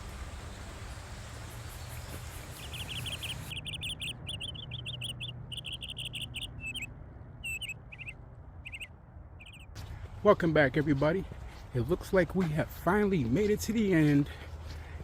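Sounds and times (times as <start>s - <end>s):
background hiss: 0.0s - 3.6s
small bird chirping: 1.5s - 9.8s.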